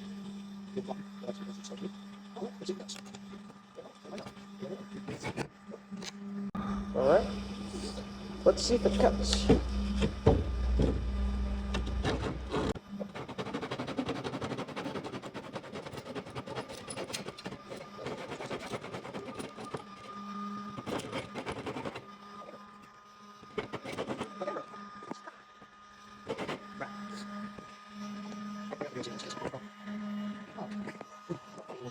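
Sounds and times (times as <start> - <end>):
low hum: 5.7 - 13.3
hand saw cutting wood: 11.8 - 22.6, 23.4 - 25.2, 26.2 - 27.4.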